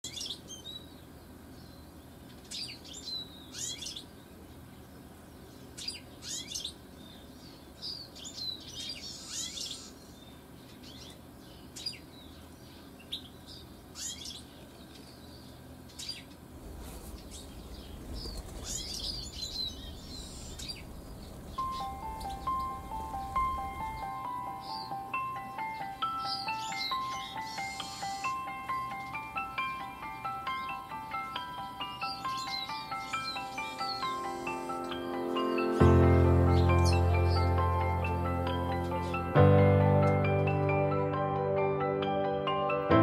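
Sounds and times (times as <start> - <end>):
small birds chirping: 0.0 - 40.6
low rumble: 16.5 - 24.3.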